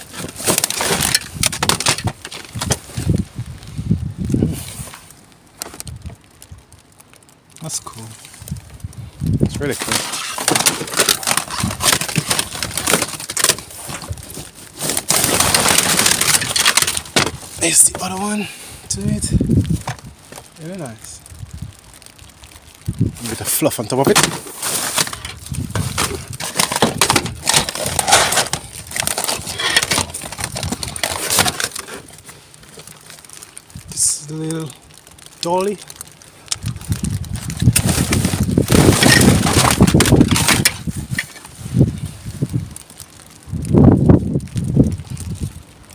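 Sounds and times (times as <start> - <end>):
knocks and clicks of items moved: 0.0 - 2.8, 24.0 - 32.1
objects clattering together: 0.0 - 2.8, 9.5 - 18.1, 24.0 - 32.2, 37.6 - 41.5
plastic crinkling and rustling: 0.0 - 45.9.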